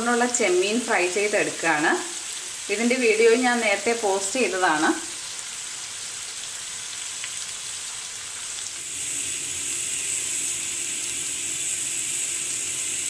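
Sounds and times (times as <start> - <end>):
prawns sizzling in a frying pan: 0.0 - 13.0.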